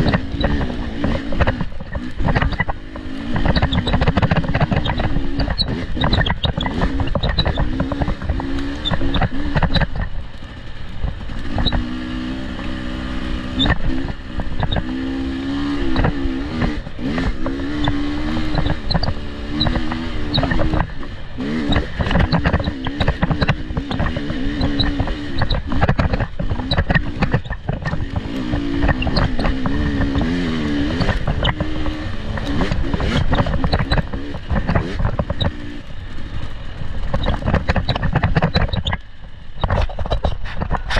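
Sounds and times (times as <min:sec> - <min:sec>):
knocks and clatter: 0:00.0 - 0:10.4, 0:13.6 - 0:35.9, 0:36.8 - 0:40.9
off-road vehicle engine revving: 0:00.0 - 0:40.9.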